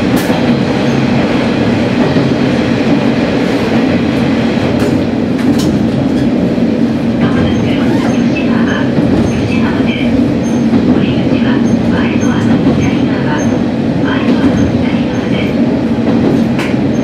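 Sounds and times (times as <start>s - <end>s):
diesel railcar engine and wheel rumble: 0.0s - 17.0s.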